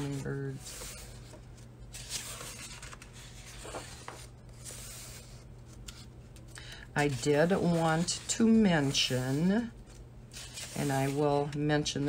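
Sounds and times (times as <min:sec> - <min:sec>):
paper pages rustling: 0:00.0 - 0:11.6.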